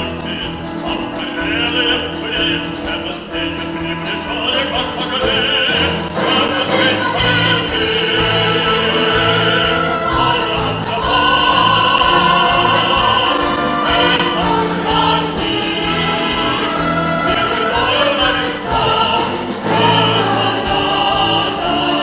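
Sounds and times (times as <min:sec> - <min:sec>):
orchestra playing held chords: 0:00.0 - 0:22.0.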